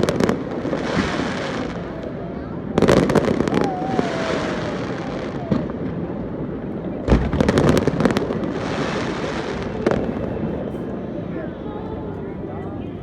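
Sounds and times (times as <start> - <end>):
fireworks bangs: 0.0 - 10.6
fireworks crackling: 0.0 - 10.6
rumble of firework bursts: 0.0 - 10.8.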